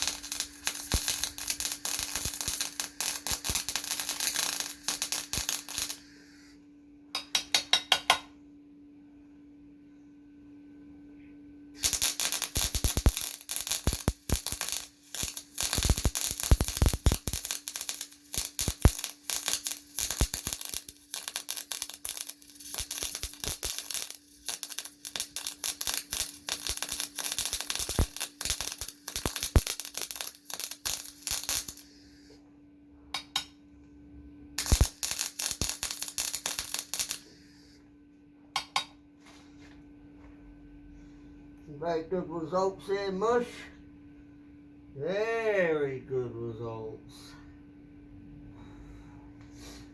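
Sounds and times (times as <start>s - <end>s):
welding arc crackling: 0.0s - 6.1s, 11.8s - 31.9s, 34.6s - 37.4s
electrical hum: 0.0s - 49.9s.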